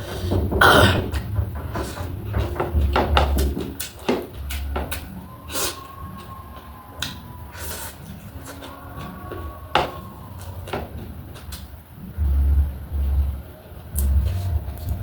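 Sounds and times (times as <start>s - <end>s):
deep low thumps: 0.3s - 3.8s, 12.0s - 15.0s.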